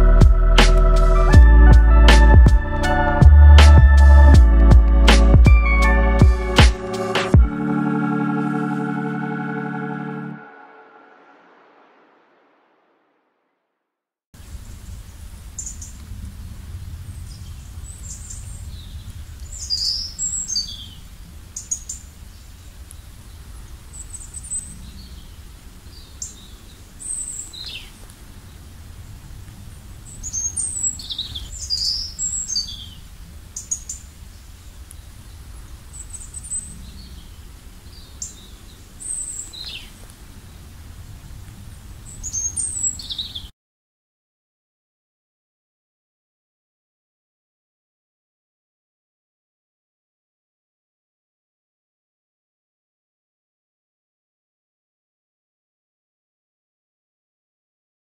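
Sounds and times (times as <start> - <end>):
low rumble: 0.0 - 7.6
songbirds singing: 17.1 - 29.2, 29.8 - 43.5.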